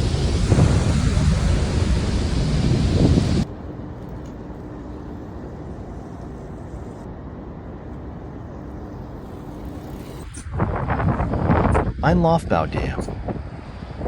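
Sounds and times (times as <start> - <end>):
wind on microphone: 0.0 - 3.5, 10.0 - 14.0
bicycle tyres rolling: 0.0 - 12.0
faint steady hum: 0.0 - 14.0.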